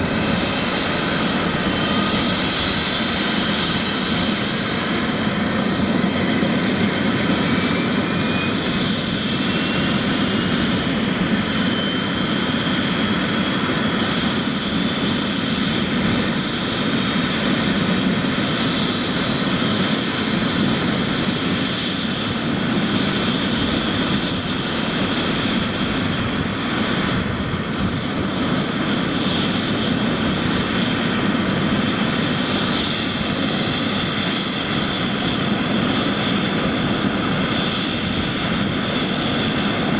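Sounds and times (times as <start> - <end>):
helicopter running: 0.0 - 39.9
high turbine whine: 0.0 - 39.9.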